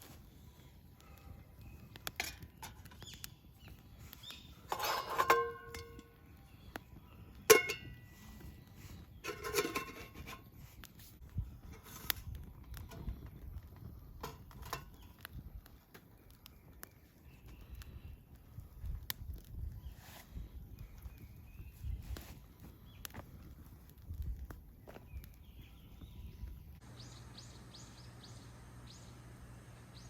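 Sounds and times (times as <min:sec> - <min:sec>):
metal cookware clinking: 0:04.7 - 0:06.1, 0:07.5 - 0:08.0, 0:09.3 - 0:10.4.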